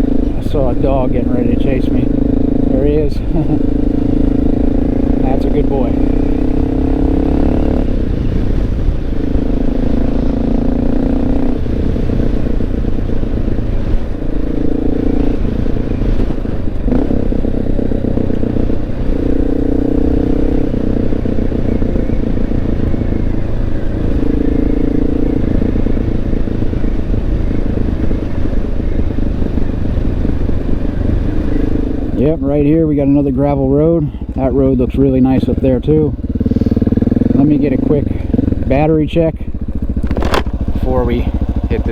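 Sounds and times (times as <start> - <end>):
motorcycle engine running: 0.0 - 41.9
low rumble: 29.6 - 41.9.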